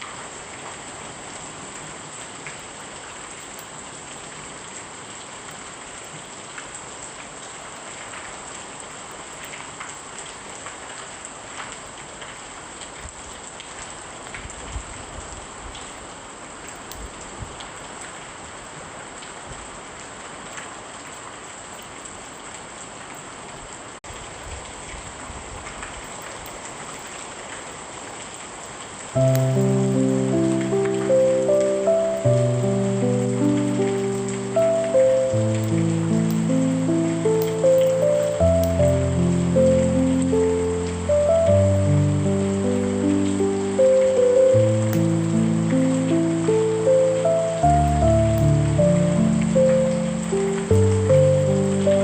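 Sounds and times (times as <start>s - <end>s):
steady rain falling: 0.0s - 52.0s
raindrops ticking: 29.2s - 52.0s.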